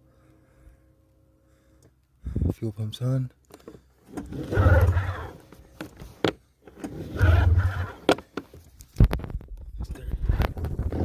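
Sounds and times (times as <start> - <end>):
snowmobile engine cranking and running: 3.5 - 8.5.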